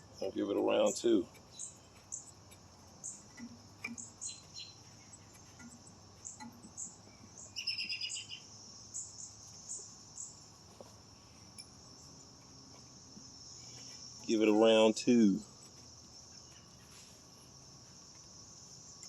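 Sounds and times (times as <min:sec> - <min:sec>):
rapid bird trill: 0:00.0 - 0:10.5
insects droning: 0:00.0 - 0:19.0
short bird chirps: 0:04.0 - 0:05.2, 0:07.2 - 0:08.5.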